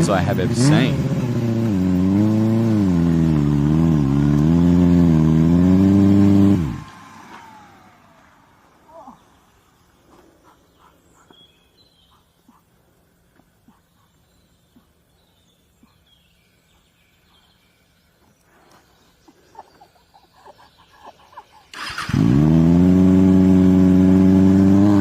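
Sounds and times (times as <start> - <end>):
birds chirping: 0.0 - 3.7, 7.0 - 22.2
motorcycle engine revving: 0.0 - 9.6, 21.7 - 25.0.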